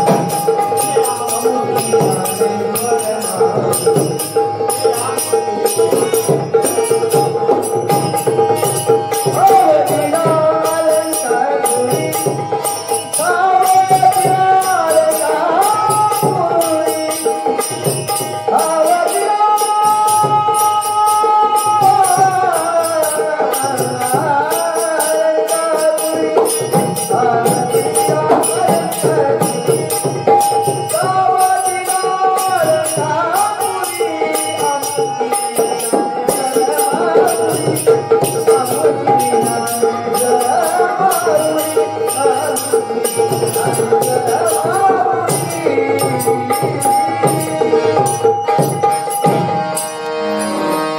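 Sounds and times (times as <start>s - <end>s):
jingling percussion: 0.0s - 50.9s.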